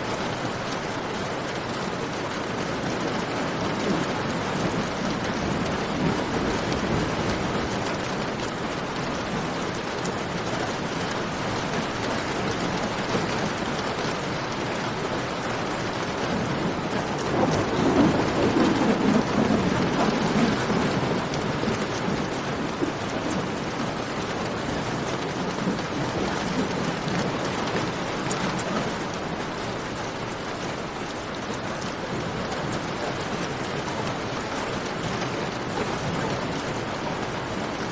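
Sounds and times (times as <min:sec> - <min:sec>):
steady rainfall: 0:00.0 - 0:37.9.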